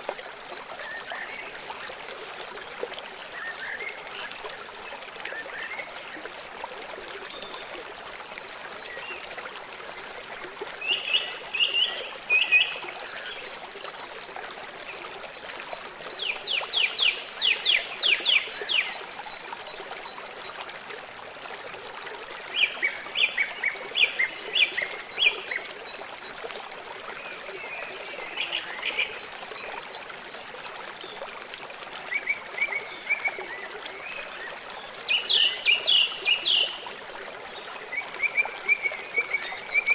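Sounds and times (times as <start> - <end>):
stream trickling: 0.0 - 39.9
songbirds singing: 32.1 - 36.9.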